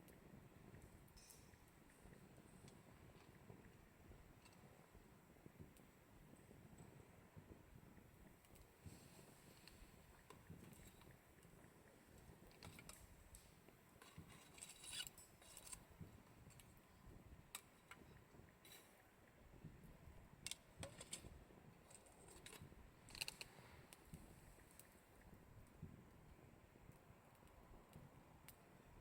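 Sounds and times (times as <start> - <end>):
campfire pops and snaps: 0.0 - 26.2.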